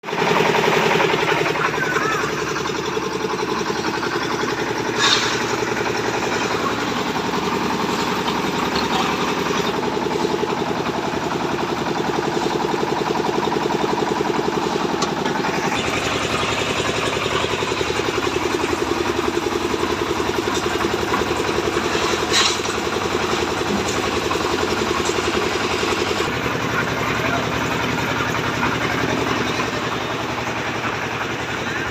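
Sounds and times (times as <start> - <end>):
engine running: 0.0 - 31.9.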